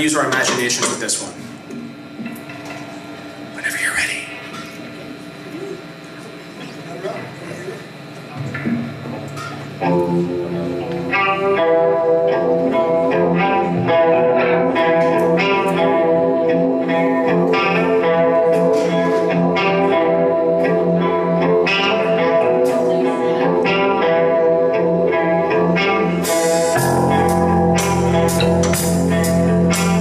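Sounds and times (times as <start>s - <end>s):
live guitar music: 8.3s - 30.0s.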